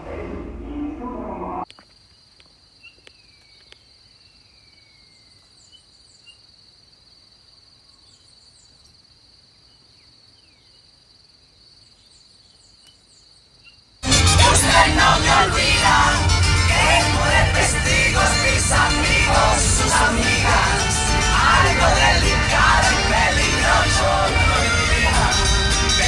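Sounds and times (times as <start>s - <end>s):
music: 14.0s - 26.0s.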